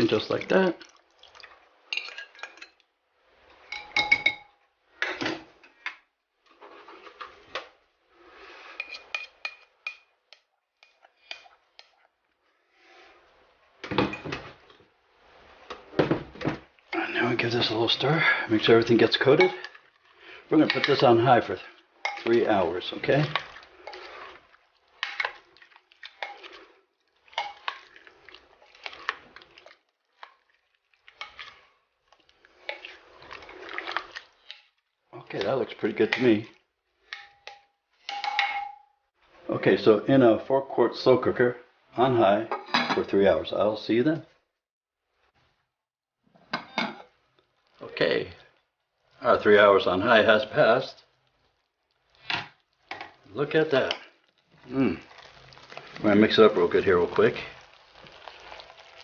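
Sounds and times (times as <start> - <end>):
wet squishing of stirred food: 0.0 - 4.6, 5.4 - 38.4, 45.0 - 59.0
spoon clinking against pot: 1.9 - 2.8, 3.7 - 4.5, 22.0 - 22.3, 37.1 - 38.9
spoon scraping a mixing bowl: 8.7 - 12.1, 20.6 - 26.7, 27.3 - 34.7.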